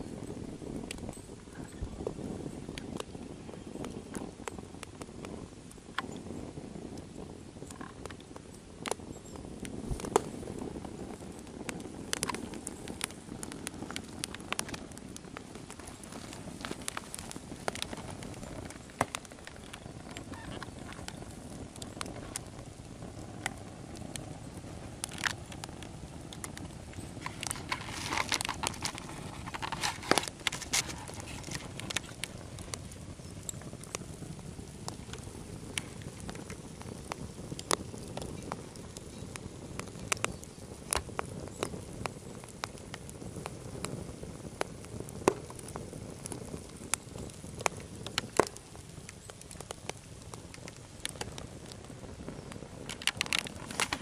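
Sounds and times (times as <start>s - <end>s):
burning log crackling: 0.0s - 54.0s
sharp pops of fire: 0.0s - 54.0s.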